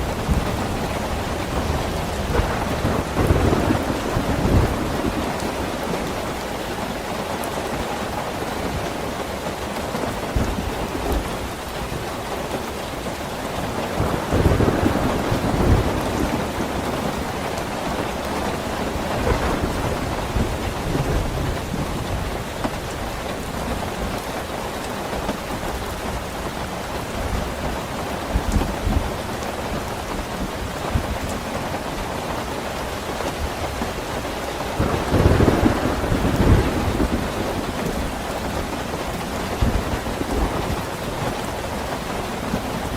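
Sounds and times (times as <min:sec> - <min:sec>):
thunder rolling: 0:00.0 - 0:07.2, 0:13.6 - 0:22.4, 0:34.6 - 0:42.9
rain falling: 0:00.0 - 0:42.9.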